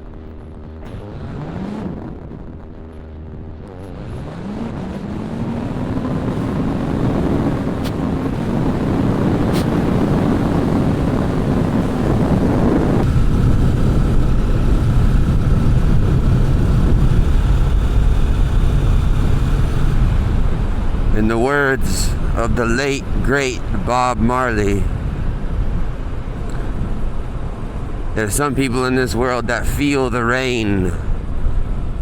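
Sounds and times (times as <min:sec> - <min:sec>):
motorcycle engine accelerating: 0:00.0 - 0:22.4
wind noise on microphone: 0:00.0 - 0:32.0.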